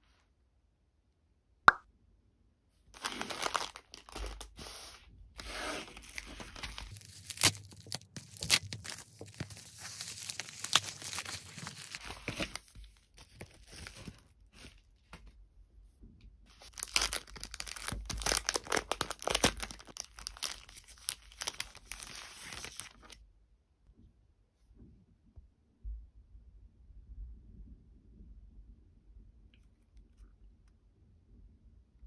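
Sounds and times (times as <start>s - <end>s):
packaging crinkling and tearing: 3.0s - 14.8s, 16.5s - 23.2s.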